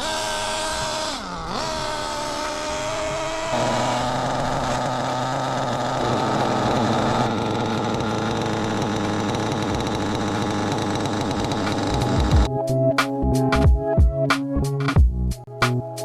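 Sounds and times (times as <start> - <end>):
nitro engine buzzing: 0.0 - 12.5.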